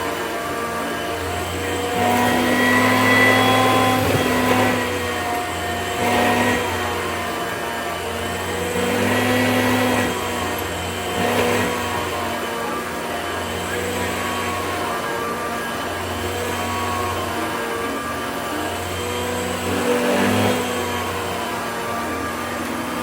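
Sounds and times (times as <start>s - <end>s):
vacuum cleaner running: 0.0s - 23.0s.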